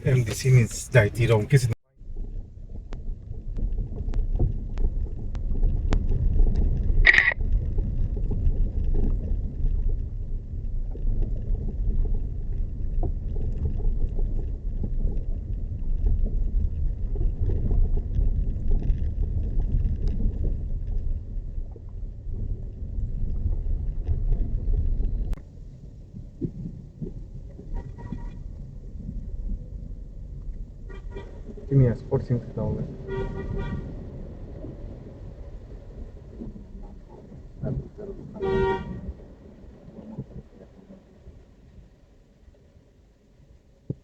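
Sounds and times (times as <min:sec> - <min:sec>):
vehicle rumbling on rough track: 0:00.0 - 0:44.0.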